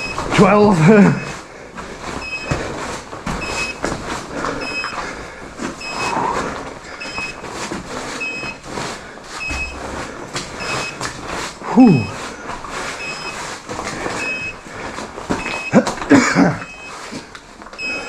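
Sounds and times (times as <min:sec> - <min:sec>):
gas monitor alarm beeping: 0:00.0 - 0:01.4, 0:02.2 - 0:02.7, 0:03.3 - 0:03.9, 0:04.5 - 0:05.0, 0:05.8 - 0:07.6, 0:08.2 - 0:08.7, 0:09.4 - 0:10.0, 0:10.6 - 0:11.1, 0:11.8 - 0:12.2, 0:13.0 - 0:13.5, 0:14.1 - 0:18.0
scuffing and knocking of movement: 0:00.0 - 0:11.6.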